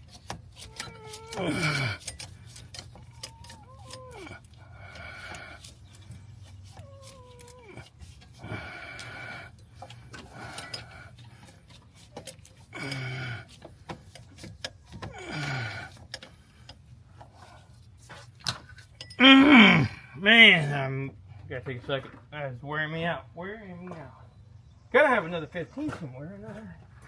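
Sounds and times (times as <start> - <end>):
tools tapping on metal: 0.0 - 4.3, 18.5 - 19.2
man groaning: 1.3 - 2.0, 12.8 - 13.4, 15.1 - 16.0, 19.2 - 20.7
man breathing hard and grunting: 1.3 - 2.1, 4.1 - 5.7, 7.6 - 11.6, 12.7 - 13.8, 15.0 - 16.6, 19.2 - 20.2.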